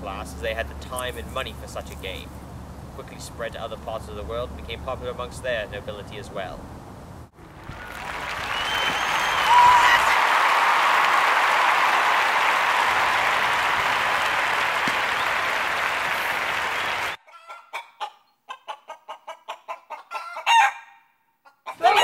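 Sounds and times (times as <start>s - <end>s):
applause: 7.5s - 17.2s
chicken clucking: 17.3s - 20.6s.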